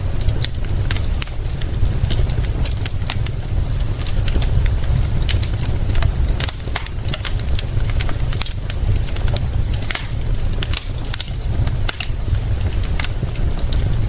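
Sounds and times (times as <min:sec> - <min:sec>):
fire crackling and popping: 0:00.0 - 0:14.0.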